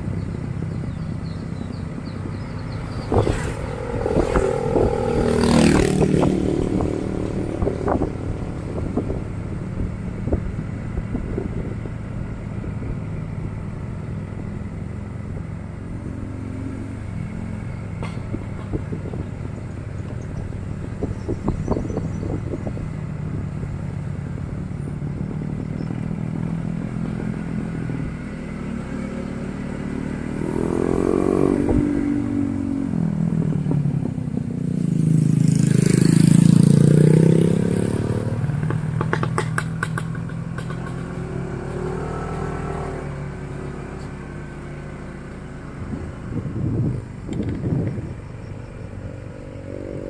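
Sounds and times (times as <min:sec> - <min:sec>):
motorcycle engine revving: 0:00.0 - 0:50.0
rattling clicks: 0:46.3 - 0:49.4.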